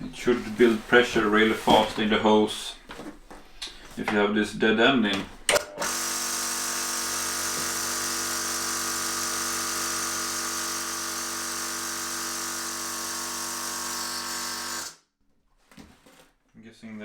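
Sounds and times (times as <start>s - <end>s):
air compressor running: 5.5s - 15.0s.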